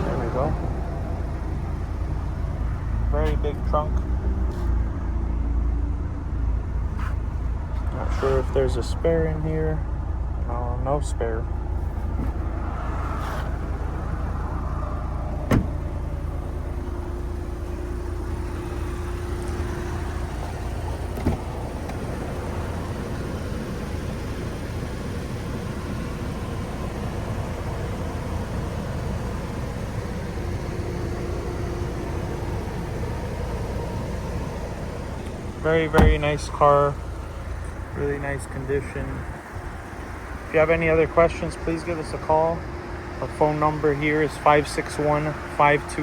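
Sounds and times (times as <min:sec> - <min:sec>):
car trunk lid thump: 0:12.1 - 0:12.6, 0:15.4 - 0:16.0, 0:20.4 - 0:22.0, 0:35.8 - 0:36.6.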